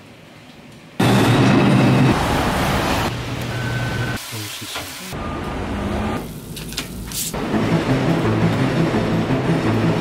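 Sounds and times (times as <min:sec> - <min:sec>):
wet traffic: 0:01.6 - 0:05.2.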